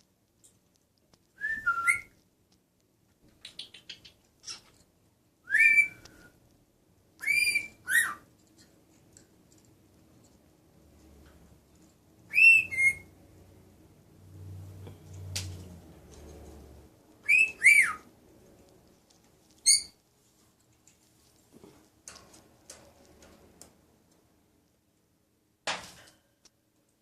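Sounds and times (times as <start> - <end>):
bird whistled calls: 5.5 - 6.1, 7.2 - 8.2, 12.3 - 13.1, 17.2 - 18.0.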